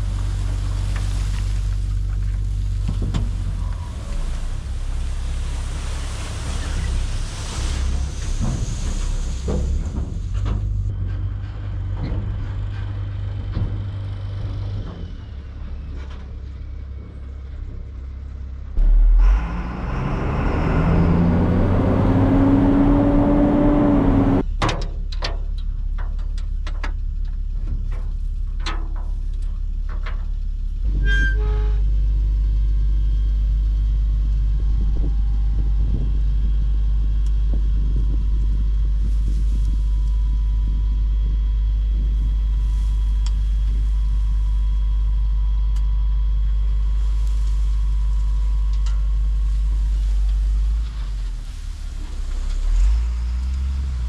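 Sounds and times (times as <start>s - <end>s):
machine engine droning and revving: 0.0s - 24.5s.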